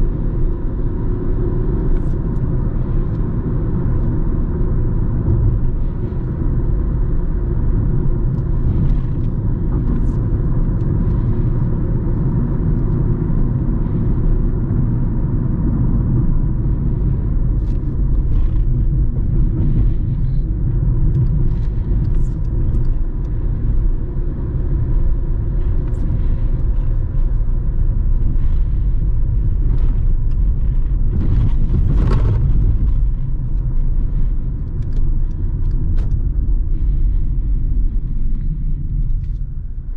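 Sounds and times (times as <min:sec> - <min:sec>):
faint constant hum: 0:00.0 - 0:39.9.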